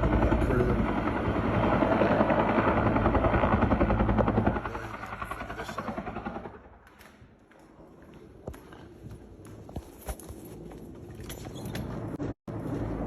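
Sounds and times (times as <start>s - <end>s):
helicopter rotor chopping: 0.0s - 7.0s.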